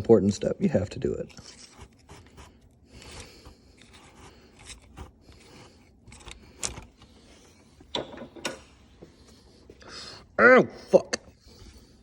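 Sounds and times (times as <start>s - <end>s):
tools scraping and rubbing: 1.0s - 7.9s.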